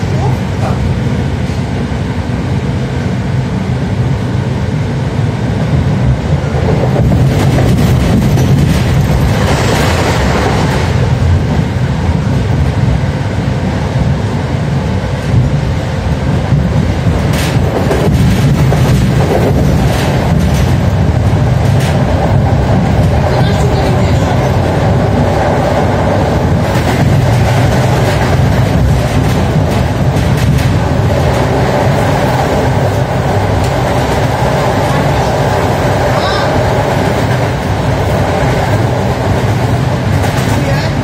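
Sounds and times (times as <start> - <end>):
train interior rumble: 0.0 - 41.0
wheels clicking on track: 17.0 - 41.0.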